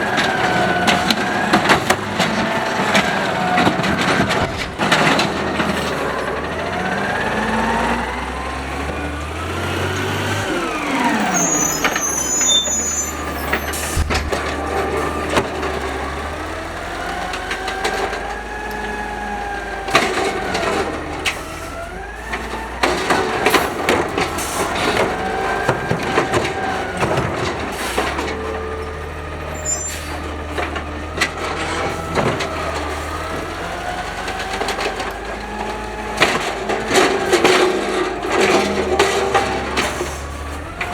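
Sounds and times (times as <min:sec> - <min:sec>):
clunks and bangs of arm and cart: 0:00.0 - 0:07.8, 0:13.1 - 0:19.2, 0:19.8 - 0:40.9
garbage truck engine revving: 0:00.0 - 0:40.9
hydraulic whine: 0:06.8 - 0:15.5.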